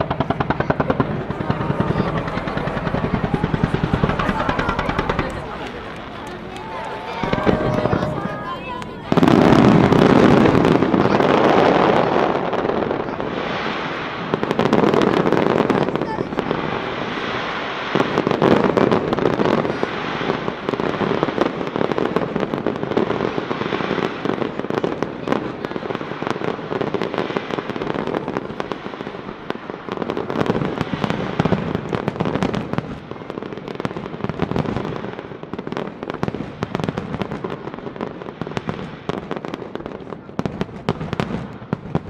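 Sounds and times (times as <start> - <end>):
steady noisy roar: 0.0 - 13.0.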